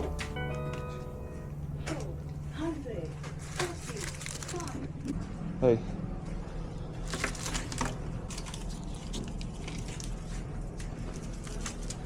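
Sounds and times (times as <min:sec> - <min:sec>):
clicks and rustles of handling: 0:07.0 - 0:12.0.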